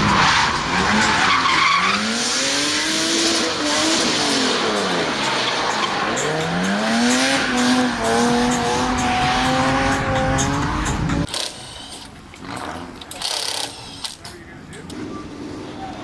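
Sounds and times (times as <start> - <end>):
car engine at high revs: 0.0 - 11.3.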